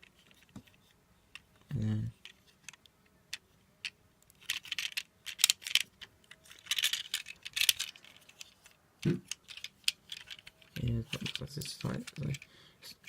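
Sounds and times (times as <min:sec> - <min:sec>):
plastic bricks clicking and rattling: 0:04.3 - 0:13.0.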